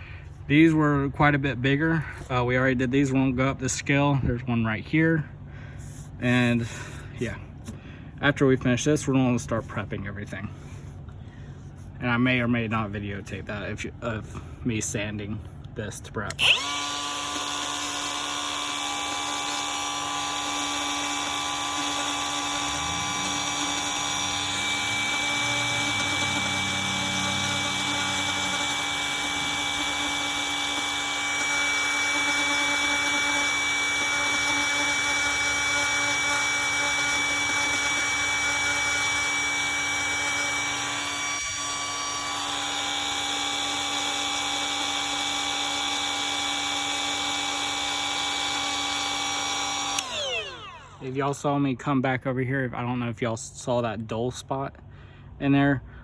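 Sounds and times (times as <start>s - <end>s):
grinding fiberglass: 16.2s - 51.6s
rotary grinder whine: 16.3s - 51.4s.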